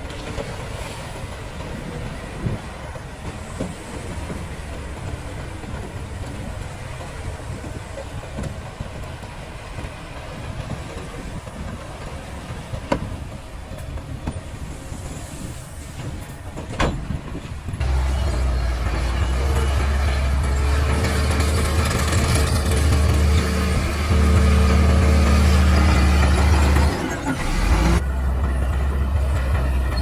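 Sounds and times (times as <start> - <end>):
heavy diesel machinery engine rumble: 17.8 - 30.0.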